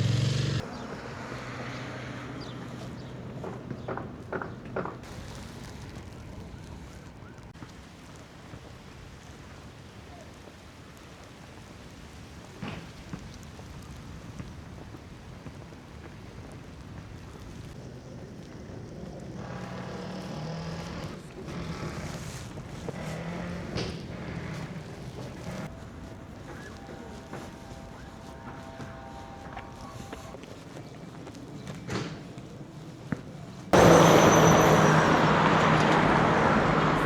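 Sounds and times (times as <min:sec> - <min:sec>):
passing engine: 0:00.0 - 0:04.1, 0:19.2 - 0:27.5, 0:33.8 - 0:37.0
traffic: 0:00.0 - 0:08.0, 0:16.2 - 0:37.0
wind: 0:00.0 - 0:37.0.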